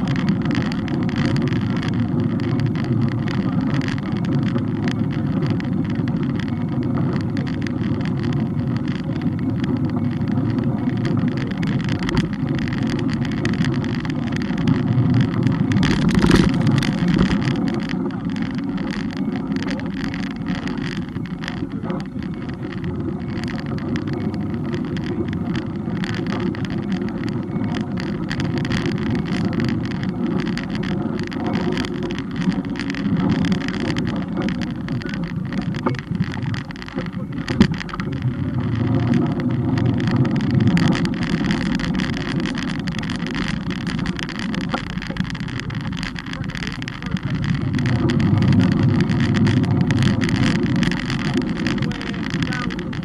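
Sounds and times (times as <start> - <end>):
small rattles: 0.0 - 53.0
wind and road noise rumble: 0.0 - 53.0.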